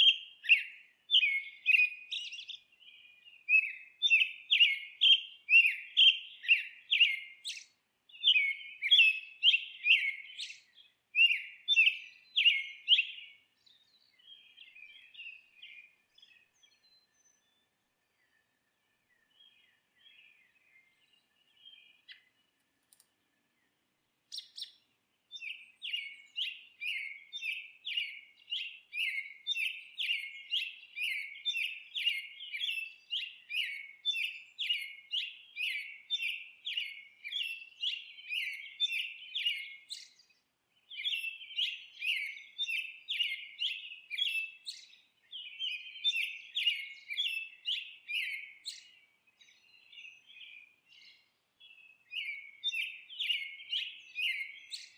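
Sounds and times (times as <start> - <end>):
bird chirping: 0.0 - 54.9.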